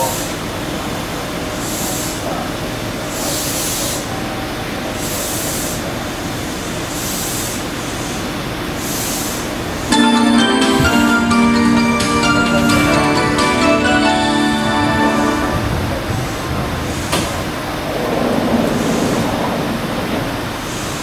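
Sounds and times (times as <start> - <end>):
train low hum: 9.8 - 20.5.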